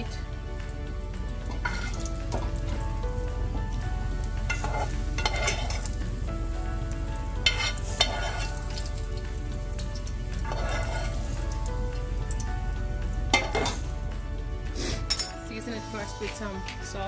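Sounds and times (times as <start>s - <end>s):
bacon sizzling in a frying pan: 0.0s - 14.7s
scraping: 1.4s - 3.0s, 4.5s - 6.0s, 7.4s - 8.9s, 10.4s - 11.4s, 13.3s - 14.0s.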